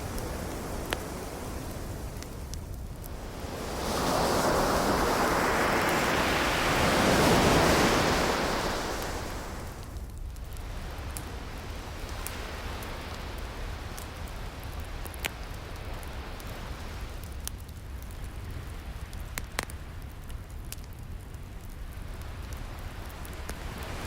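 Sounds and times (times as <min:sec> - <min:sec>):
wave washing: 0:00.0 - 0:10.0
fire pops: 0:00.0 - 0:24.0
wood fire crackling: 0:00.0 - 0:24.0.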